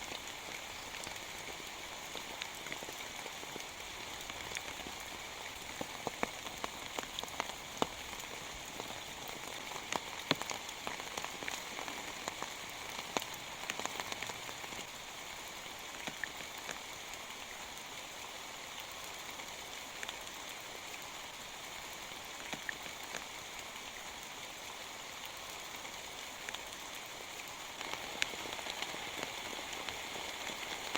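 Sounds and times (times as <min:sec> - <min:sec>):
raindrops ticking on surface: 0:00.0 - 0:15.0, 0:15.6 - 0:18.0, 0:18.7 - 0:30.9
rain hissing: 0:27.1 - 0:30.9.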